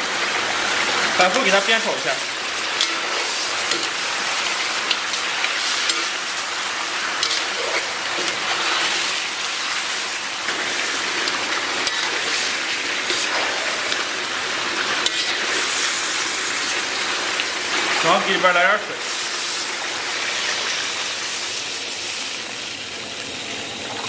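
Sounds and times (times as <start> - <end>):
meat sizzling in a wok: 0.0 - 24.0
metal ladle clicking: 3.7 - 3.9.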